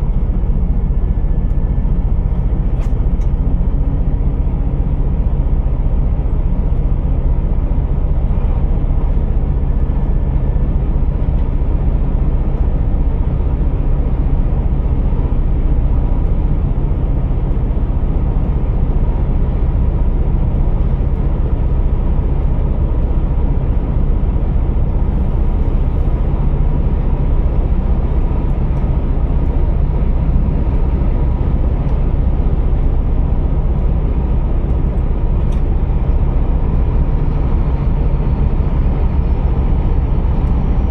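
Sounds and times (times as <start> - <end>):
diesel truck engine droning: 0.0 - 40.9
small click: 2.3 - 3.4, 35.4 - 35.7.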